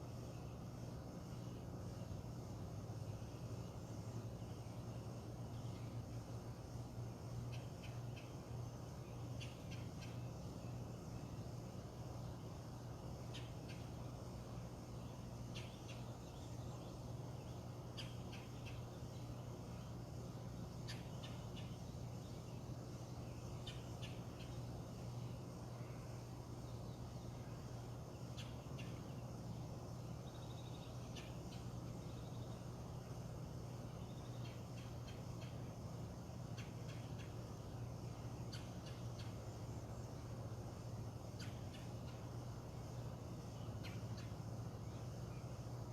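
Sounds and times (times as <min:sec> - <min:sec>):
steady low hum: 0:00.0 - 0:45.9
bird calls and chirps: 0:07.5 - 0:10.5, 0:15.1 - 0:19.9, 0:20.7 - 0:24.7, 0:28.2 - 0:29.3, 0:33.9 - 0:35.6, 0:36.5 - 0:40.3, 0:41.4 - 0:42.3, 0:43.6 - 0:45.6.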